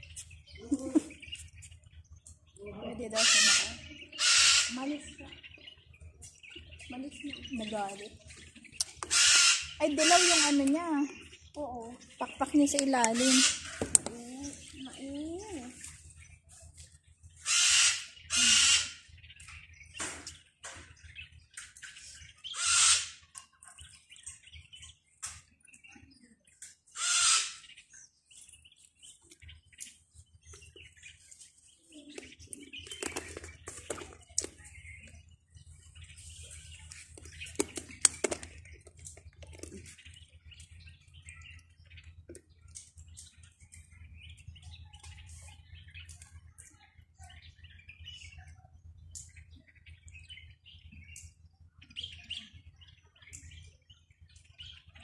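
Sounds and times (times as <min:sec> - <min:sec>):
bird chirping: 0:00.0 - 0:55.0
bird squawking harshly: 0:03.1 - 0:05.1, 0:09.0 - 0:10.8, 0:13.1 - 0:13.8, 0:17.4 - 0:19.1, 0:22.5 - 0:23.3, 0:27.0 - 0:27.7.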